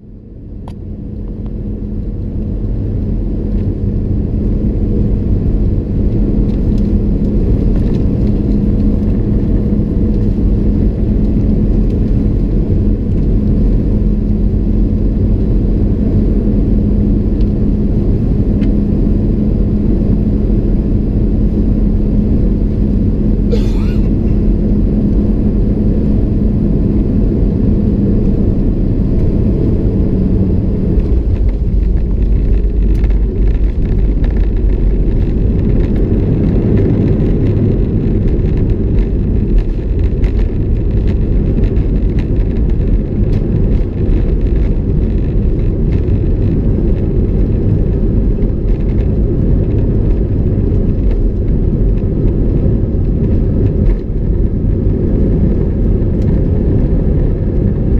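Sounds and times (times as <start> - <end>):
airplane cabin rumble: 0.0 - 57.9
low hum: 21.9 - 34.1.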